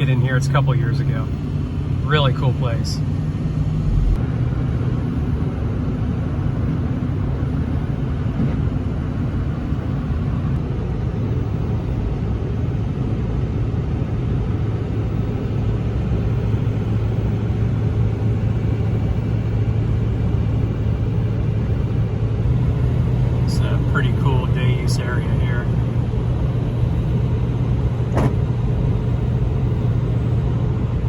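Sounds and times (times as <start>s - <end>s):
low road rumble: 0.0s - 31.0s
pickup truck driving at speed: 0.0s - 31.0s.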